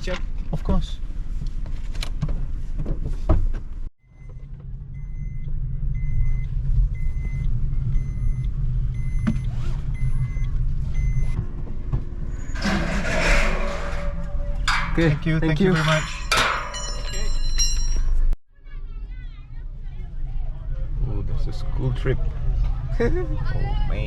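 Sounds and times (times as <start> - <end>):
car warning chime beeping: 4.1 - 11.4.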